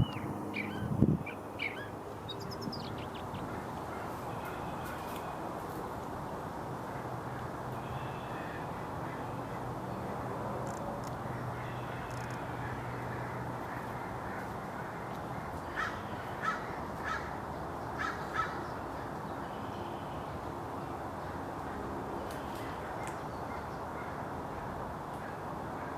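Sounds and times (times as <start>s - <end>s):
steady rushing background noise: 0.0s - 7.7s.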